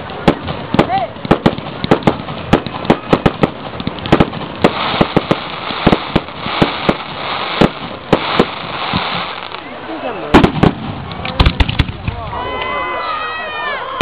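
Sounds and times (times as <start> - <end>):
fireworks bangs and pops: 0.0 - 12.4
steady hiss: 4.4 - 10.1.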